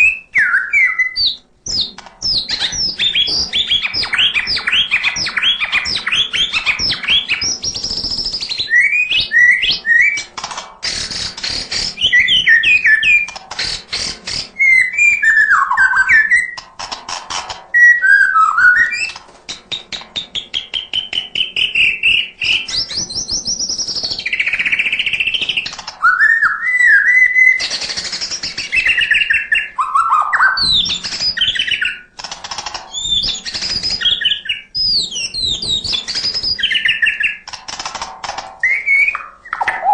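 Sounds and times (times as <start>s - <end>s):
songbird singing varied song: 0.0s - 10.2s.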